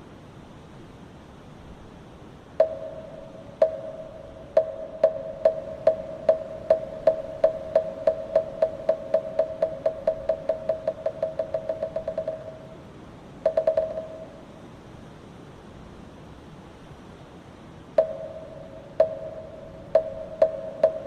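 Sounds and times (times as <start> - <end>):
wooden fish knocks: 4.6 - 12.6.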